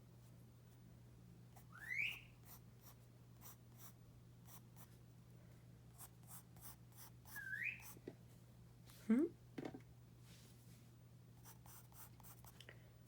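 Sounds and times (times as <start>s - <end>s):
parrot rising whistle: 1.7s - 2.3s, 7.4s - 7.8s
pencil scratching on paper: 6.0s - 8.0s, 11.4s - 12.6s.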